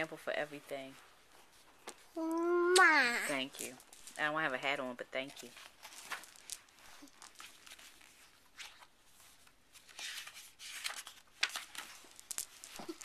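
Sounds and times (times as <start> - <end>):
book pages rustling: 5.5 - 13.0.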